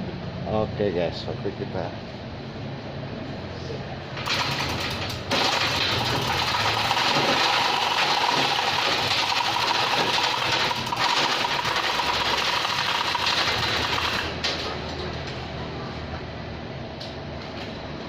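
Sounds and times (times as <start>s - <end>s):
machine rattling and whining: 4.2s - 15.6s.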